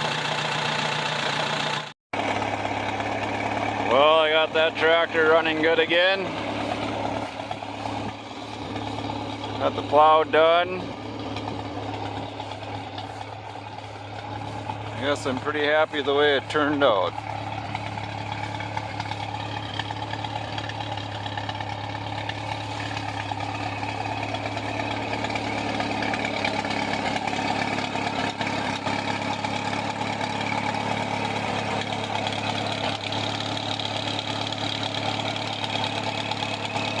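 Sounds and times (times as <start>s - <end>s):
tractor engine idling: 0.0s - 37.0s.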